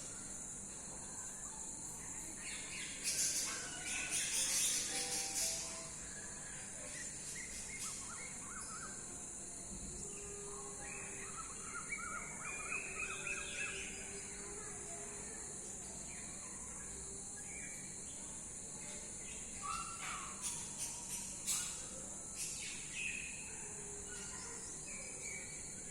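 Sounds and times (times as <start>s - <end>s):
high-pitched hiss: 2.7s - 7.9s.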